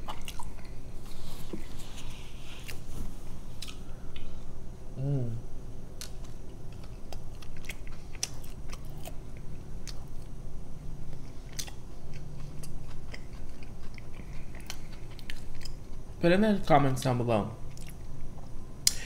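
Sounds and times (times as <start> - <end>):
person chewing crunchy food: 0.0 - 1.8, 6.0 - 10.4, 11.0 - 16.1.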